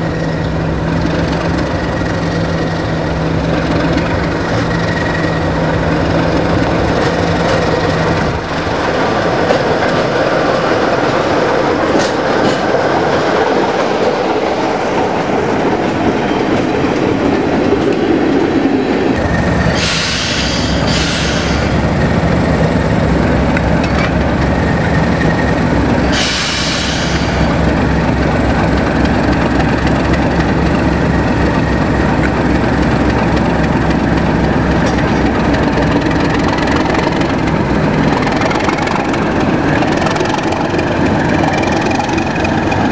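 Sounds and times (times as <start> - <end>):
diesel engine hum: 0.0 - 11.7, 19.2 - 42.9
train wheels clattering on rails: 0.0 - 42.9
brief hissing noises: 19.8 - 21.7, 26.1 - 27.4.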